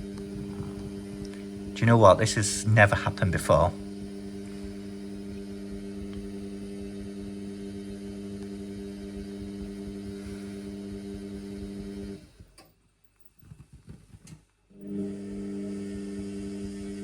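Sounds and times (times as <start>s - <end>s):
low rumble: 0.0s - 1.8s
washing machine humming: 0.0s - 12.6s, 14.7s - 17.0s.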